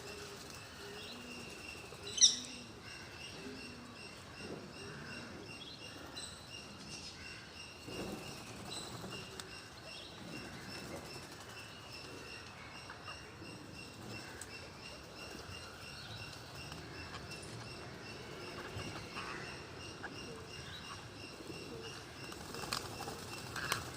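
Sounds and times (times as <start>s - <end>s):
steady high chirp: 1.4s - 2.7s
parrots chirping: 2.1s - 2.7s
wings flapping: 22.2s - 23.9s.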